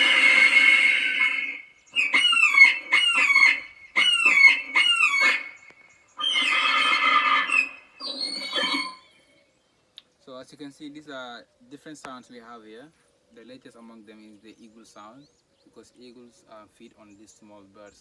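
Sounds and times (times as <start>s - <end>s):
eagle calls through loudspeaker: 0.0s - 9.0s.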